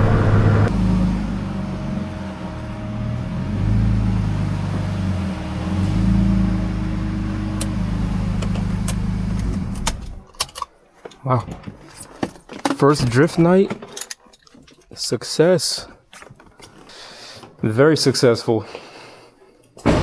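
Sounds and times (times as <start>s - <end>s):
car engine running at low revs: 0.0s - 10.3s.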